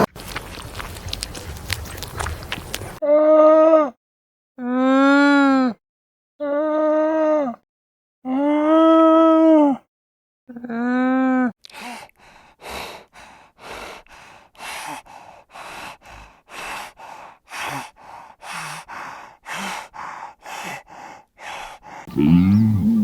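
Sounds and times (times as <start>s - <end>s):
animal breathing heavily: 0.0s - 3.0s, 12.2s - 23.0s.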